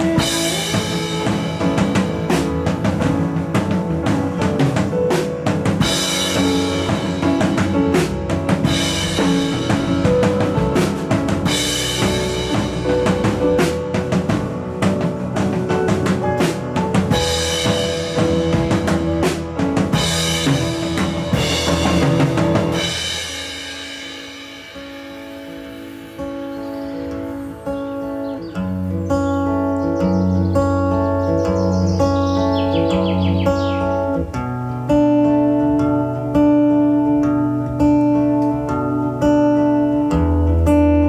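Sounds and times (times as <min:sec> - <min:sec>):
live band playing: 0:00.0 - 0:28.5
cymbal crashes: 0:17.2 - 0:27.4.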